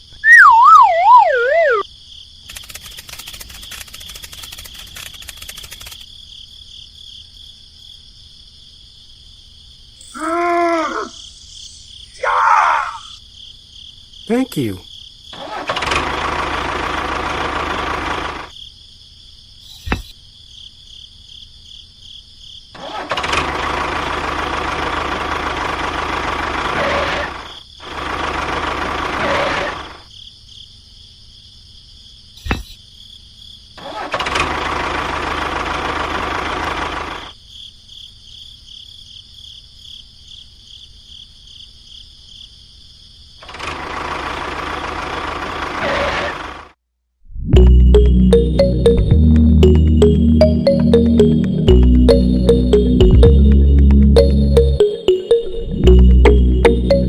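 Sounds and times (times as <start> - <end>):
small motor running: 2.5 - 6.0.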